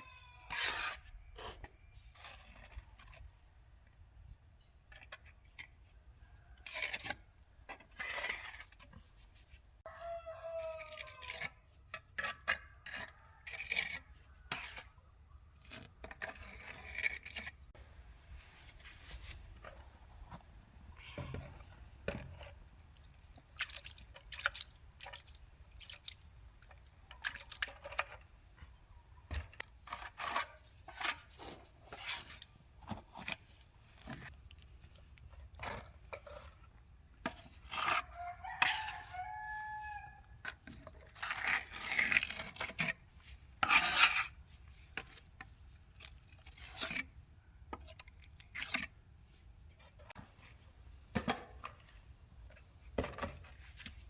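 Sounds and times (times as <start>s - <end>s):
rooster crowing: 9.9s - 11.3s, 38.0s - 40.2s.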